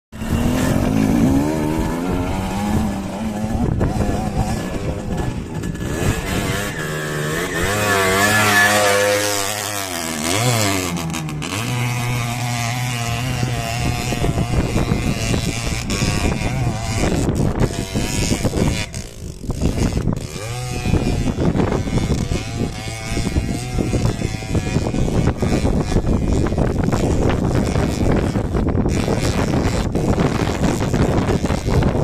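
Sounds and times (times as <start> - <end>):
dirt bike engine revving: 0.2 - 32.0.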